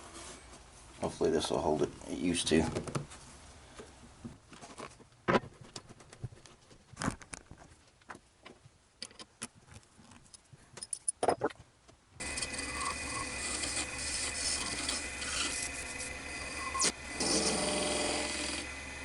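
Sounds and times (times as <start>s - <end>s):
wood lathe humming and whining: 12.2s - 19.0s.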